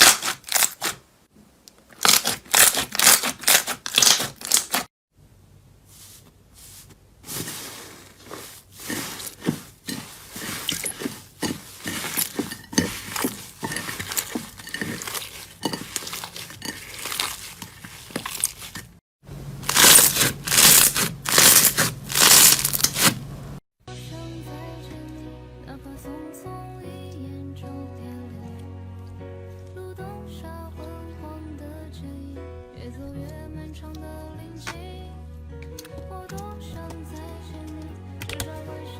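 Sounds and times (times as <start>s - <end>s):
slime squishing and crackling: 0.0s - 1.0s, 2.0s - 4.9s, 8.4s - 19.0s, 19.6s - 23.2s
soft music: 23.9s - 38.9s.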